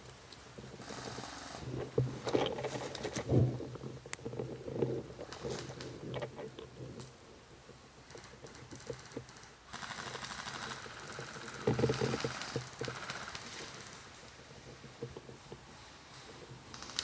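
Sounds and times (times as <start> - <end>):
airsoft gun full-auto burst: 9.7 - 11.6.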